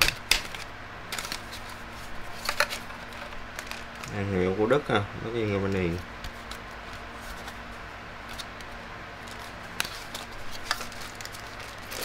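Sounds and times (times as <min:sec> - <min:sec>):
faint steady hum: 0:00.0 - 0:12.0
plastic helmet clicks and rustling: 0:02.4 - 0:04.2.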